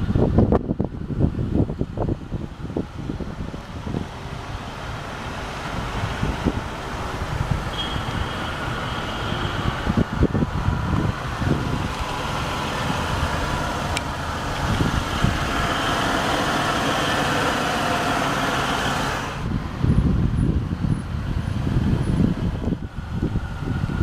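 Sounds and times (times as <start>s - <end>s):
wind gusting on microphone: 0.0s - 24.0s
car engine running: 0.3s - 23.3s.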